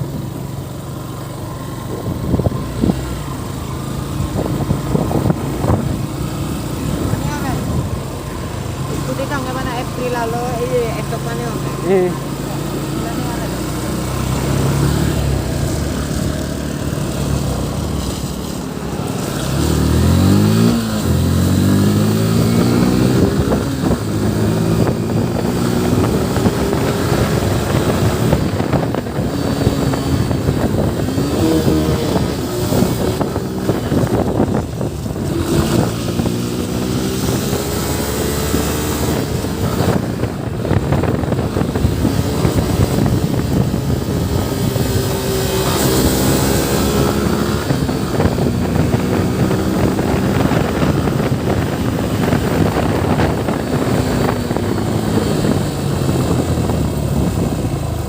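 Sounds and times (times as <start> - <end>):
motorcycle engine accelerating: 0.0 - 58.0
wind and road noise: 0.0 - 58.0.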